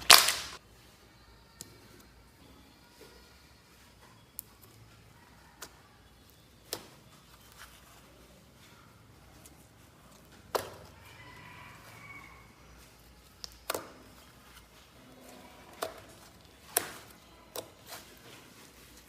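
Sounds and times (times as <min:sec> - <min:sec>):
slime clicking and snapping: 0:00.0 - 0:00.6, 0:13.4 - 0:14.1.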